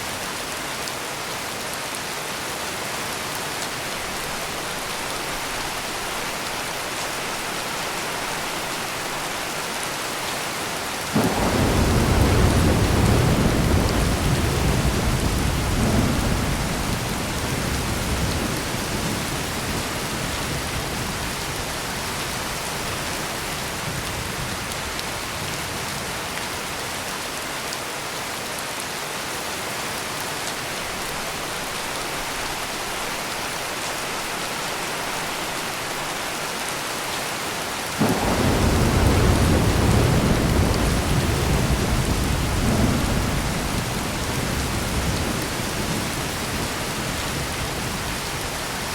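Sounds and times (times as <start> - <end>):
heavy rain pouring: 0.0 - 48.9
thunderclap: 11.2 - 19.2, 38.0 - 46.7
thunder rumbling: 11.2 - 21.2, 38.0 - 48.5.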